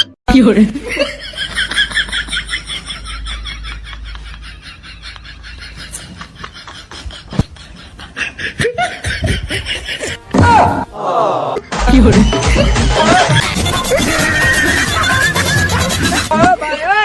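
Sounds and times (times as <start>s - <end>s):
snickering laughter: 0.8s - 10.2s, 12.0s - 16.4s
loud pitched sound: 10.2s - 16.3s.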